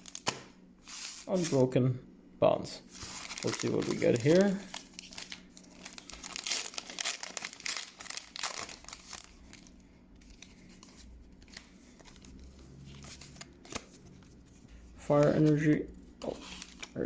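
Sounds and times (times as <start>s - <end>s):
foil wrapper tearing and crinkling: 0.0s - 0.4s, 2.9s - 10.4s, 16.3s - 17.0s.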